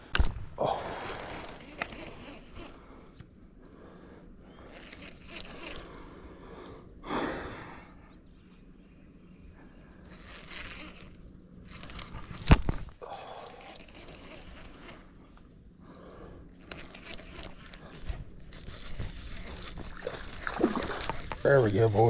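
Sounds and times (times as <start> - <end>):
high insect-like tone: 0.9 - 22.0.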